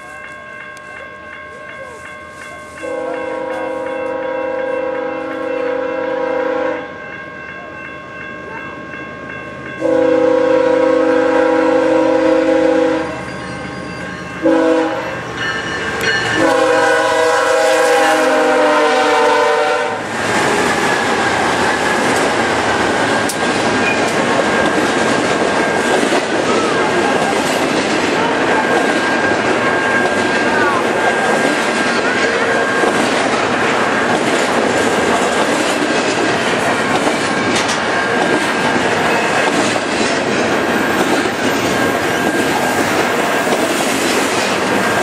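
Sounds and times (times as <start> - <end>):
freight train roaring past: 0.0 - 45.0
locomotive air horn blasts: 2.8 - 6.9, 9.8 - 13.2, 14.4 - 15.2, 16.4 - 20.1.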